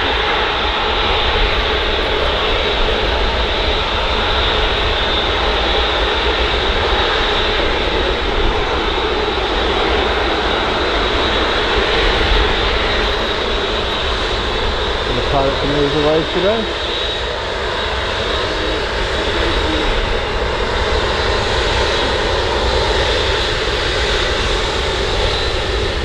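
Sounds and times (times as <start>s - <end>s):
jet engines whining: 0.0s - 26.0s
wind on microphone: 0.0s - 26.0s.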